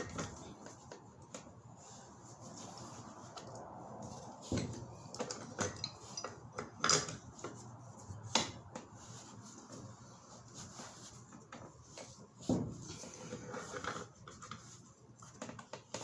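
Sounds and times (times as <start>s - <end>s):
metal tools clinking: 5.1s - 7.2s.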